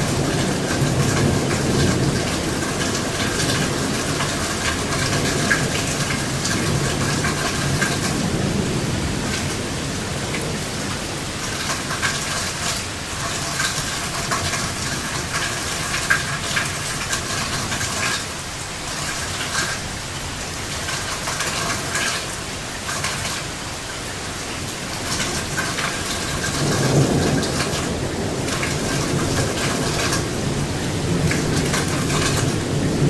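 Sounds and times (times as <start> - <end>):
heavy rain falling: 0.0 - 33.0
low thunder rumble: 25.0 - 33.0.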